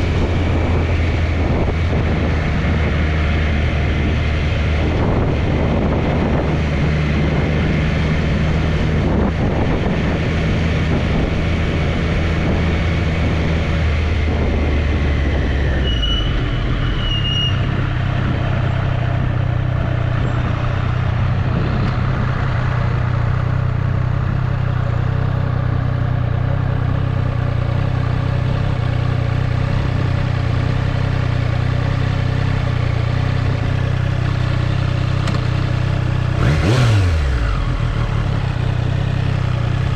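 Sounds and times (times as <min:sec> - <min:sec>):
motorcycle engine running: 0:00.0 - 0:17.0, 0:17.6 - 0:39.9
falling engine whine: 0:00.0 - 0:24.5
road and wind noise: 0:00.0 - 0:39.9.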